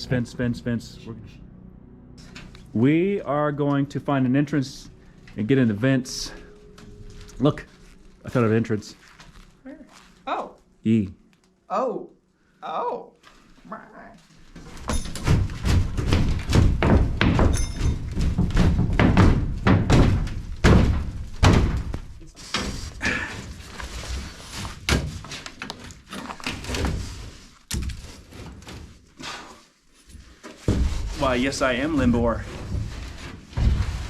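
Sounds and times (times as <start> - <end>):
body knocking against metal duct: 14.9 - 22.1.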